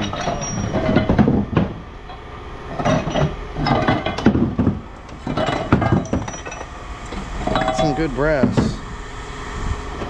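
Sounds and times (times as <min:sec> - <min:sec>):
scrap metal clanking into metal bin: 0:00.0 - 0:01.7, 0:02.8 - 0:06.6.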